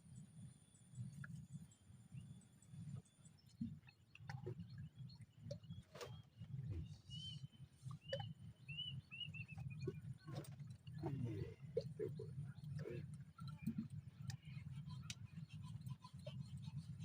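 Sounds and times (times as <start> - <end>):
light ticks and taps: 13.4 - 15.2.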